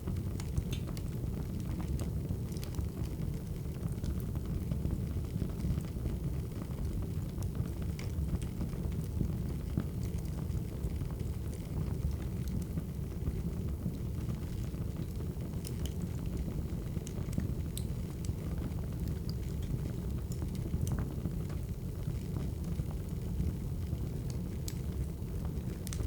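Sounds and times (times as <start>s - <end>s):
fire pops and snaps: 0.1s - 6.0s, 6.9s - 26.0s
burning logs rumbling: 0.1s - 26.0s.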